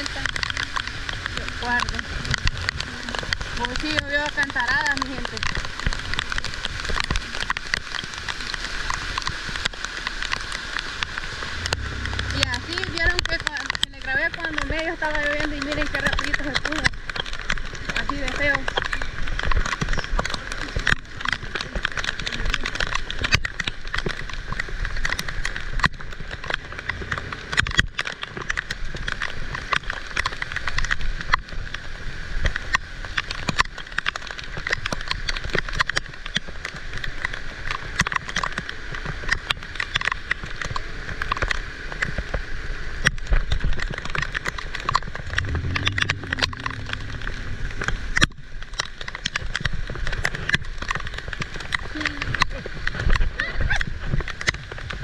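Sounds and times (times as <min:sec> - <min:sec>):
heavy rain pouring: 0:00.0 - 0:55.0
low hum: 0:11.0 - 0:14.7, 0:44.9 - 0:49.3.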